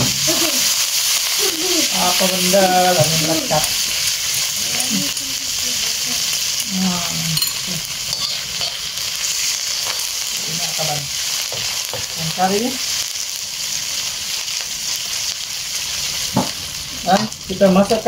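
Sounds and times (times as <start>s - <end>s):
garlic sizzling in oil: 0.0s - 18.0s
metal spatula scraping wok: 7.3s - 12.1s.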